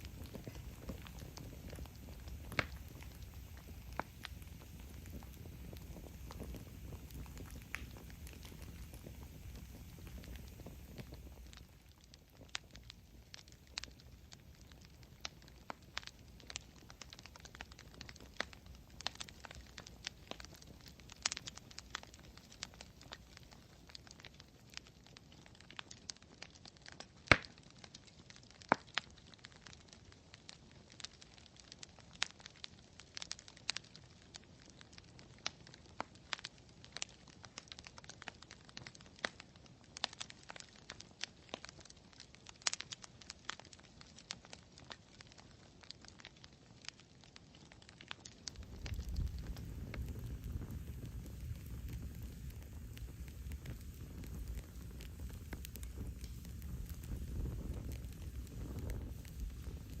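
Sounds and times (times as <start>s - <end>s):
faint steady hiss: 0.0s - 26.7s, 48.0s - 60.0s
campfire crackling: 0.0s - 60.0s
pops and snaps of burning wood: 0.0s - 60.0s.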